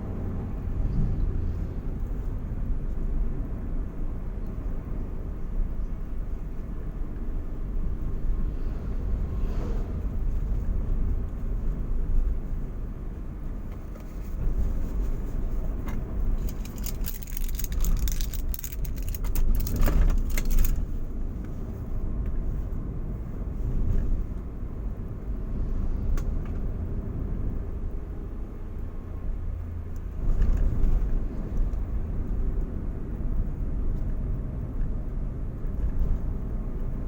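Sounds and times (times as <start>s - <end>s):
car engine and road rumble: 0.0s - 37.0s
rattling and clicking: 15.9s - 20.9s.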